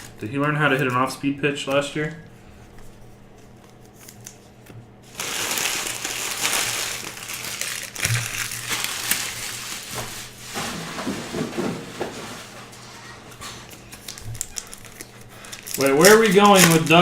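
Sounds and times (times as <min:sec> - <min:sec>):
plastic wrapper tearing and crinkling: 0:00.0 - 0:01.0, 0:05.0 - 0:10.6, 0:13.7 - 0:17.0.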